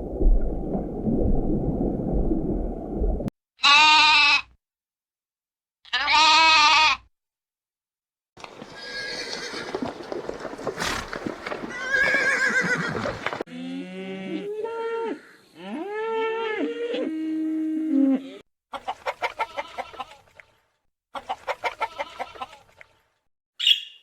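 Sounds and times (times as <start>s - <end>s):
short bleat: 3.6s - 4.5s, 5.9s - 7.1s
horse neighing and whinnying: 8.4s - 13.4s
chicken clucking: 18.7s - 20.2s, 21.2s - 22.7s.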